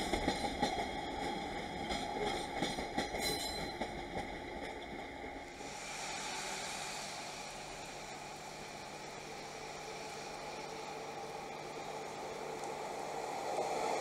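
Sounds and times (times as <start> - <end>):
train wheels rumbling and clicking: 0.0 - 14.0.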